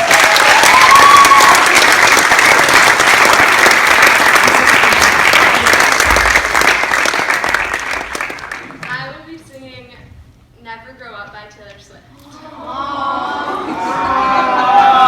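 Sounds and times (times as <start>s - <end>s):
rising whoop: 0.0s - 1.8s
audience clapping: 0.0s - 9.1s.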